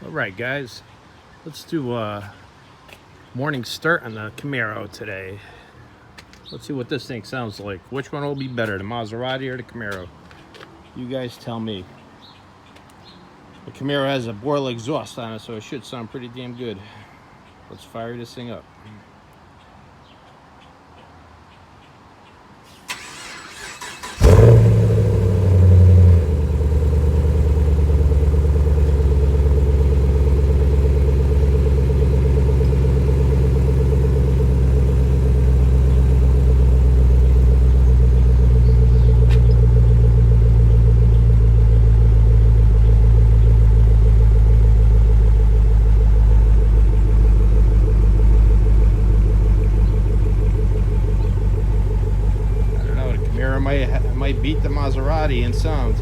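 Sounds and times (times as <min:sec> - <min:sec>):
car engine starting and idling: 0:22.7 - 0:56.0.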